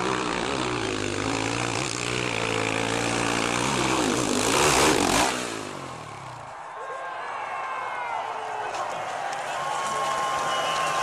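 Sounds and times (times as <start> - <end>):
motorcycle engine passing: 0.0 - 6.6.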